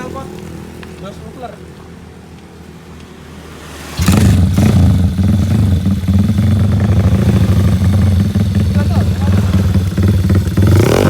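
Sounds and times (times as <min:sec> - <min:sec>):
motorcycle engine idling: 0:04.1 - 0:11.0.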